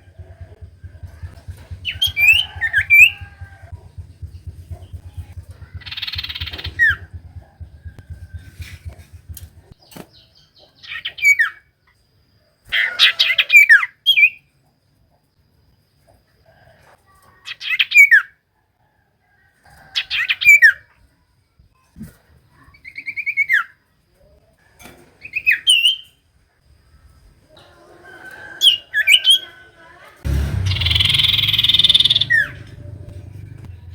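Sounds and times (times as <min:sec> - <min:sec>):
bird chattering trill and whistle: 0:00.0 - 0:09.8, 0:30.6 - 0:32.9.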